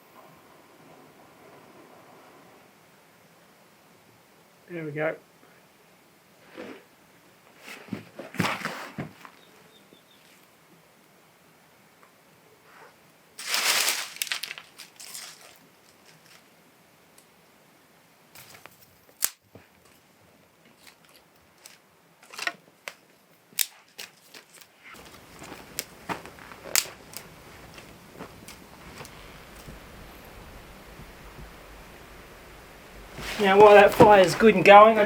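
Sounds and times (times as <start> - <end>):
campfire crackling: 13.1 - 35.0.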